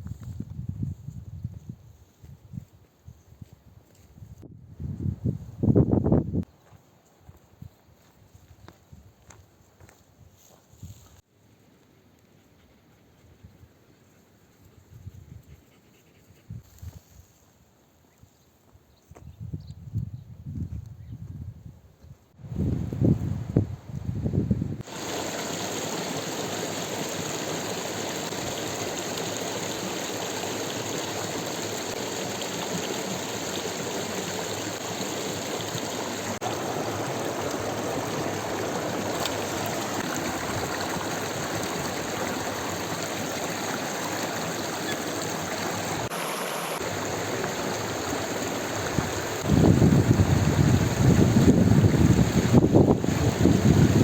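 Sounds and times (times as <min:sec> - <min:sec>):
flowing water: 0:24.8 - 0:54.0.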